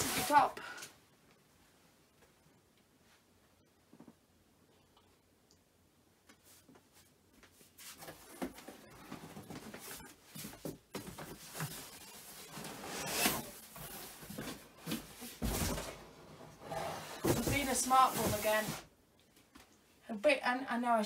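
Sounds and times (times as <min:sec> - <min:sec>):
cardboard and mattress rustling: 0:07.7 - 0:18.9.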